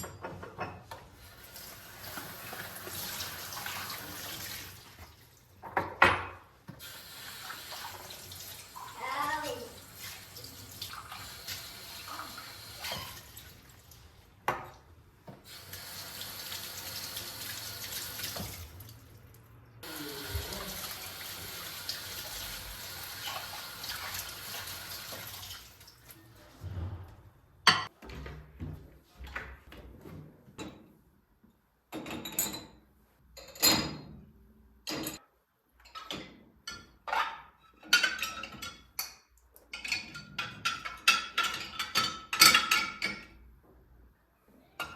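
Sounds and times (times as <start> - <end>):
knocks and clatters of handling: 0.0 - 1.1.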